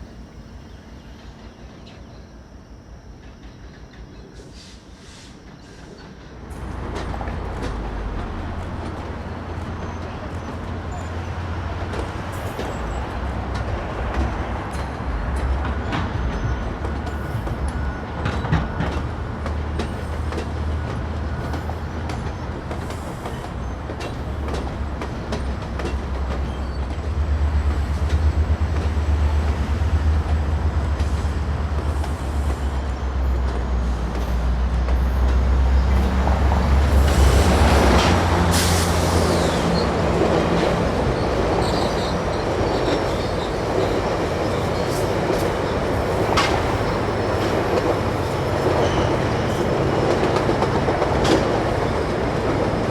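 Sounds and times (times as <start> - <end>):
wheels rushing on rails: 0.0 - 52.9
locomotive engine rumble: 5.4 - 52.9
wheels clicking over rail joints: 40.0 - 52.9.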